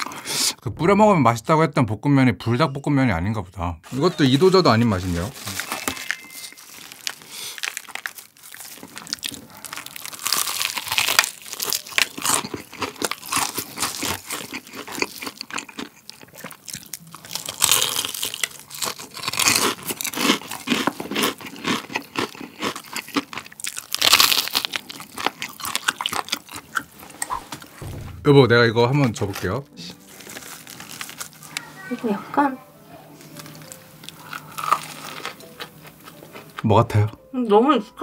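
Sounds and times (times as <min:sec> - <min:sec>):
crunching and chewing fried food: 0:04.4 - 0:27.8, 0:29.3 - 0:32.2, 0:33.2 - 0:37.2.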